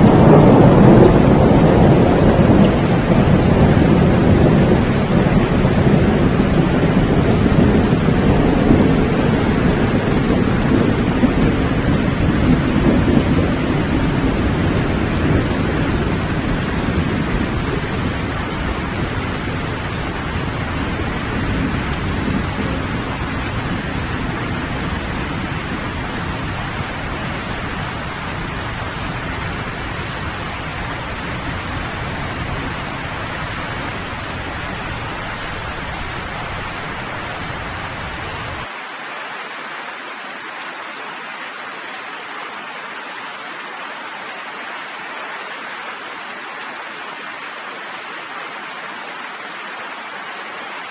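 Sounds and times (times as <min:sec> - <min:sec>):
thunder rumbling: 0:00.0 - 0:38.7
steady rain: 0:00.0 - 0:50.9.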